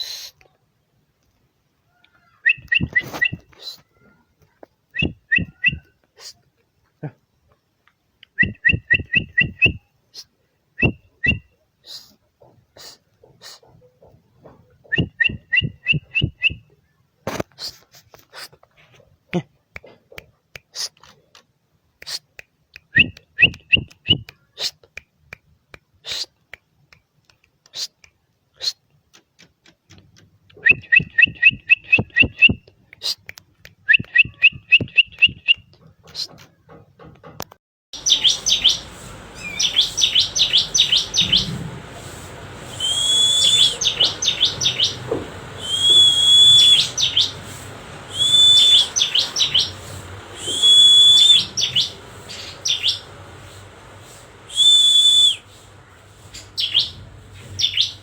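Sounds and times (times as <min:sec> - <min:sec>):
bird whistled chip notes: 0:38.0 - 0:58.0.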